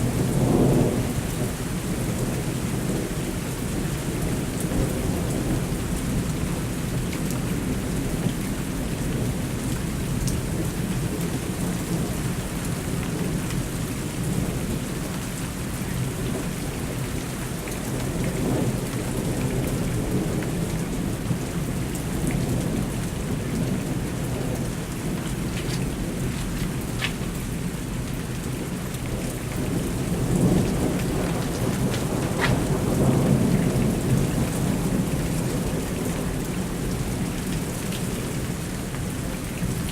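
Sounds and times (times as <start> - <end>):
steady rain falling: 0.0 - 39.9
rolling thunder rumbling: 29.1 - 35.8.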